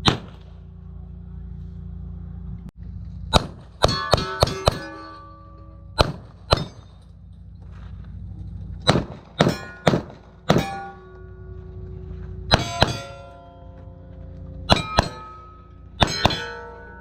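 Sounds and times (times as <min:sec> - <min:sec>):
pistol shots: 0:00.0 - 0:00.6, 0:03.3 - 0:05.0, 0:06.0 - 0:07.0, 0:08.8 - 0:10.9
steel target ringing clang: 0:03.3 - 0:07.3, 0:08.8 - 0:17.0.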